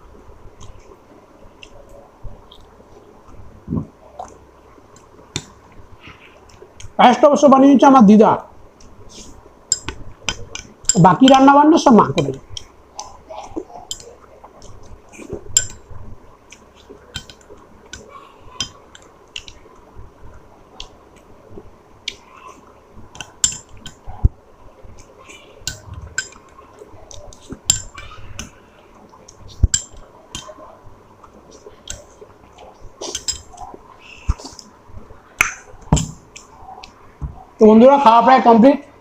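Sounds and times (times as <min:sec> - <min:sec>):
tableware clinking: 0:27.6 - 0:28.1, 0:33.0 - 0:33.7.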